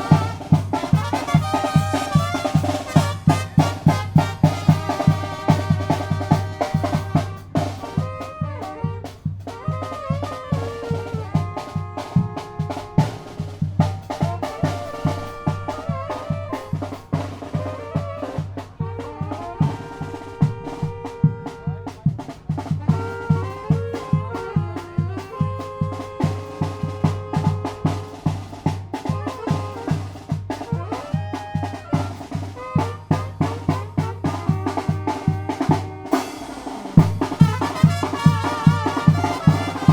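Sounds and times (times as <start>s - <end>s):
brass instruments melody: 0.0s - 39.9s
snare drum: 0.0s - 39.9s
bass drum beat: 37.0s - 39.9s.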